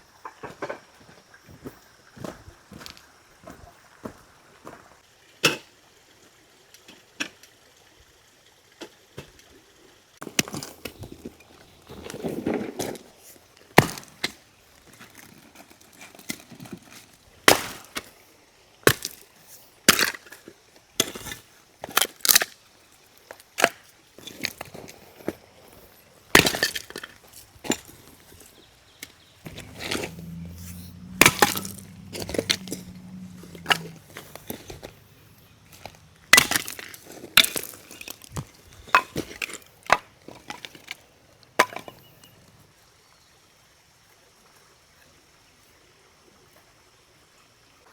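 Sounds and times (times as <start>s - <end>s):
low steady hum: 25.9s - 42.6s.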